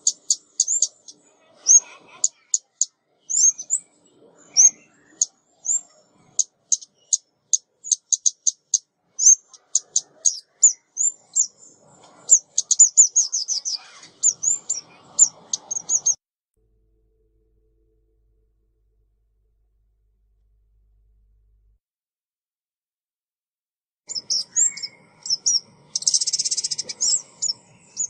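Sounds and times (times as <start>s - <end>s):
high sharp bird chirps: 0.0s - 16.2s, 24.1s - 28.0s.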